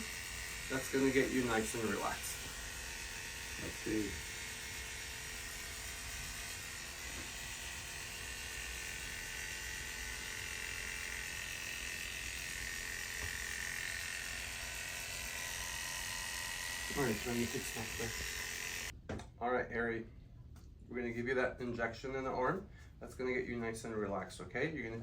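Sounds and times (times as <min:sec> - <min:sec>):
electric hair clippers running: 0:00.0 - 0:18.9.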